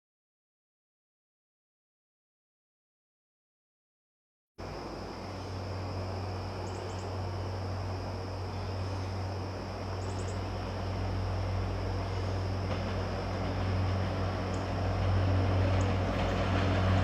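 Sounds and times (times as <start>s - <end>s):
short insect chirps: 4.6s - 14.8s
insects trilling: 4.6s - 17.0s.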